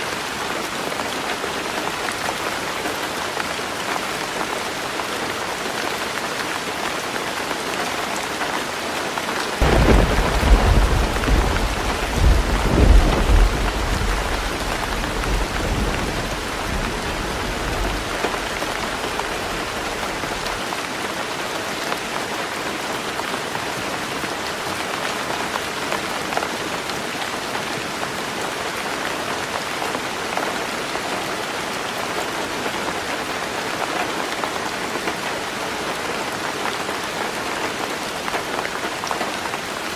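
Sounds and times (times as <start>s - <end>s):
heavy rain on a roof: 0.0s - 39.9s
thunder rumble: 9.6s - 20.5s.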